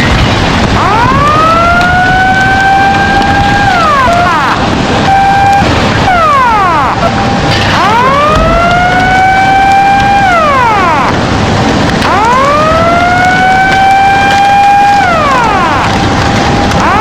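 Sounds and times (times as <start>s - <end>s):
steady noisy background: 0.0s - 17.0s
warning siren wailing: 0.0s - 17.0s.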